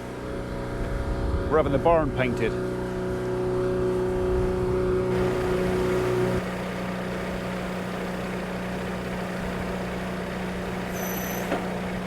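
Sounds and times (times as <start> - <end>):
engine running steadily: 0.0 - 12.0
short high whistle: 10.9 - 11.6.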